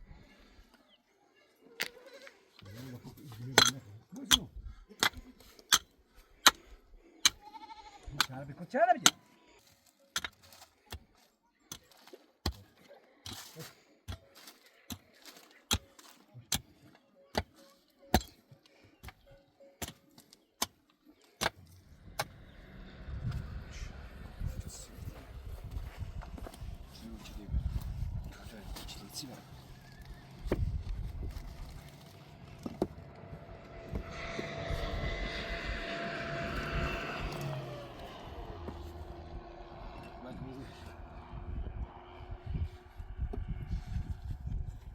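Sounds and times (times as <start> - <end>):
engine passing by: 21.8 - 44.9.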